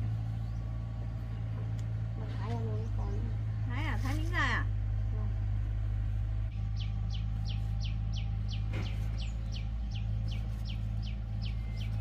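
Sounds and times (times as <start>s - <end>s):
bird chirping: 0.0s - 1.8s, 6.5s - 12.0s
steady low hum: 0.0s - 12.0s.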